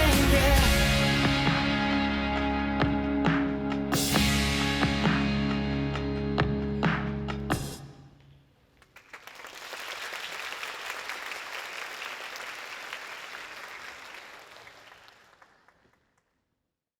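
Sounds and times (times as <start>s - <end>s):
audience applauding: 8.8s - 16.3s.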